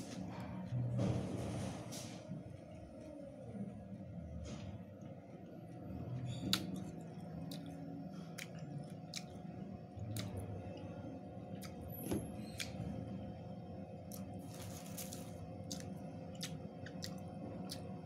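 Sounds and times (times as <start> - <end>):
steady low hum: 0.0 - 18.0
wet crunchy chewing: 6.4 - 9.4, 14.1 - 17.9.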